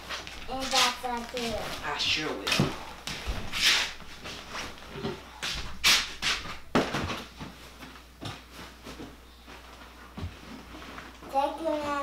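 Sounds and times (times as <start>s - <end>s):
bedding rustling: 0.0s - 12.0s.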